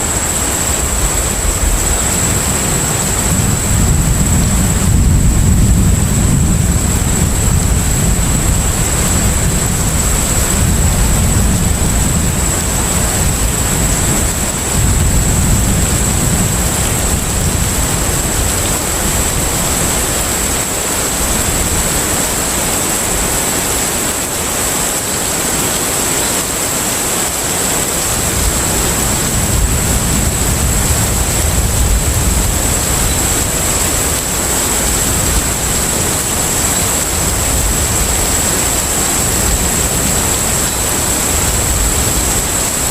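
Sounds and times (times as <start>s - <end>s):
steady wash of noise: 0.0s - 42.9s.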